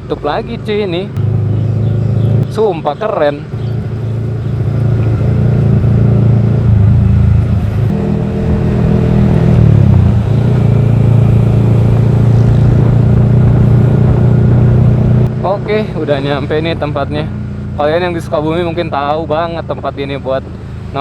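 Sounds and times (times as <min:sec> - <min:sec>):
motorcycle engine while riding: 0:00.0 - 0:21.0.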